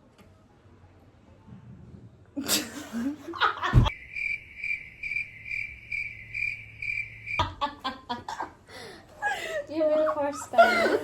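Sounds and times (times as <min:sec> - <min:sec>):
cricket chirping: 0:03.9 - 0:08.0.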